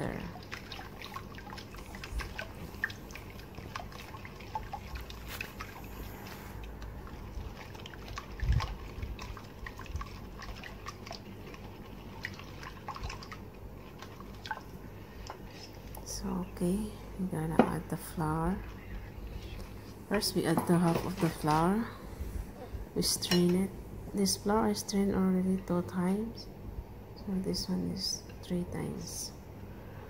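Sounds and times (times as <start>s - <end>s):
whisk stirring batter in bowl: 7.1s - 15.8s.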